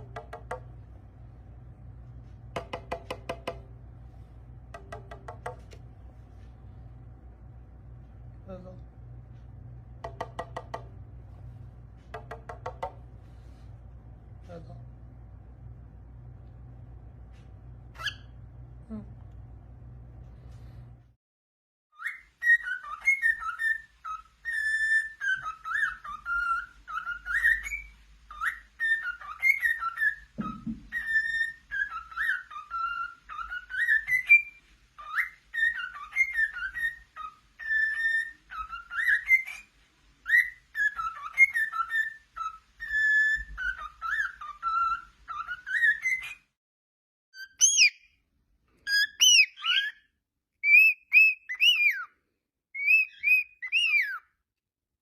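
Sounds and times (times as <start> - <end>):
cockatiel whistling a tune: 18.0 - 18.4, 22.0 - 46.5, 47.4 - 48.2, 48.8 - 52.1, 52.7 - 54.3
low thump: 30.4 - 30.9.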